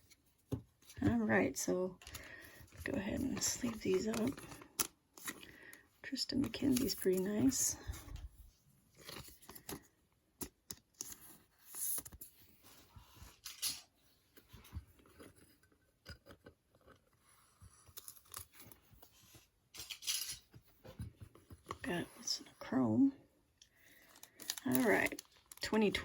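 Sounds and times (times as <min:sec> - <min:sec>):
plastic sleeves rustling: 0:00.0 - 0:17.2, 0:23.6 - 0:26.0.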